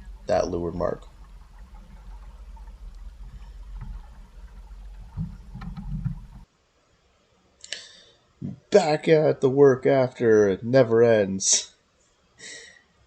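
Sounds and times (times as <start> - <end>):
wind rumbling on microphone: 0.0 - 6.4
water noise: 0.0 - 6.5
faint clicks: 1.0 - 6.4.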